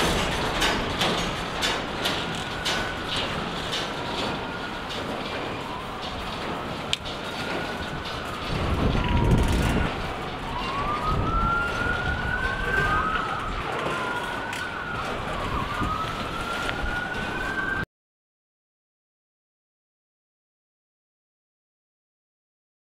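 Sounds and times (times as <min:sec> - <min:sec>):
freight cars rumbling past: 0:00.0 - 0:17.8
siren wailing: 0:01.5 - 0:17.9.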